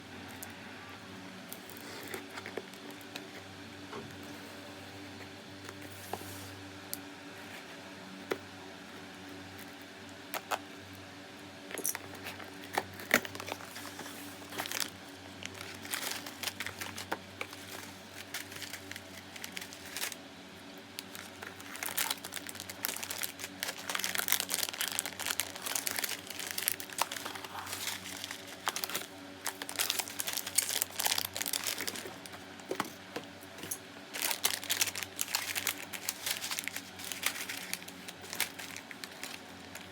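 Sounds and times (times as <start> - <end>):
plastic packaging crinkling: 12.1 - 20.2, 21.0 - 33.0, 33.6 - 39.9.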